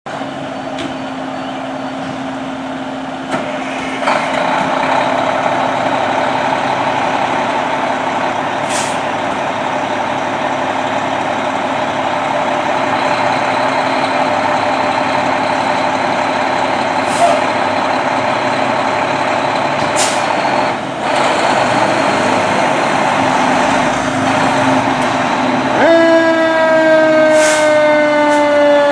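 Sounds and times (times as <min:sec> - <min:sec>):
diesel engine running: 0:00.1 - 0:28.9
air brakes hissing: 0:08.6 - 0:09.2, 0:17.0 - 0:17.6, 0:19.8 - 0:20.4, 0:27.3 - 0:28.5.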